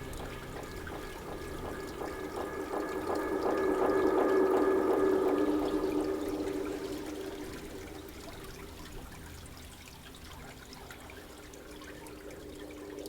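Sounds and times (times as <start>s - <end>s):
low held tone: 0.0s - 9.1s
trickling water: 0.0s - 13.0s.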